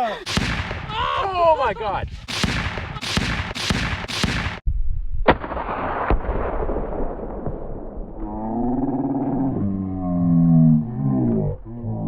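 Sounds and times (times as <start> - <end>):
sharp shot-like blasts: 0.2 - 0.9, 2.3 - 4.6
long rumble: 7.9 - 12.0.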